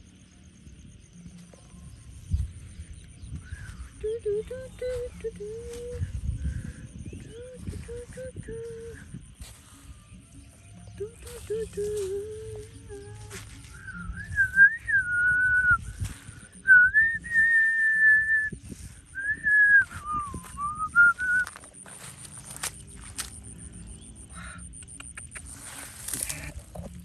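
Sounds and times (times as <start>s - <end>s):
person whistling a tune: 11.0s - 21.7s.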